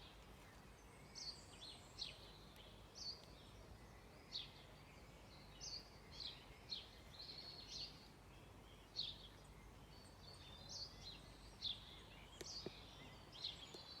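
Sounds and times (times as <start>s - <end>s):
faint background hiss: 0.0s - 14.0s
songbirds chirping: 0.0s - 14.0s
faint clicks: 12.4s - 12.8s.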